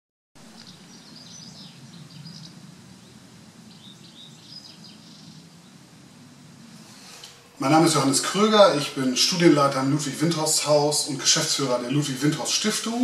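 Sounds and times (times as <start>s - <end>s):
small birds chirping: 0.4s - 7.4s
low background rumble: 0.4s - 12.9s.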